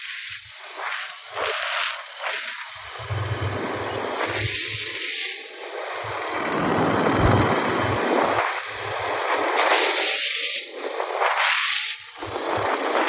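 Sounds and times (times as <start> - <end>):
low wind buffeting: 6.0 - 9.2
motorcycle wind and road noise: 6.1 - 9.0.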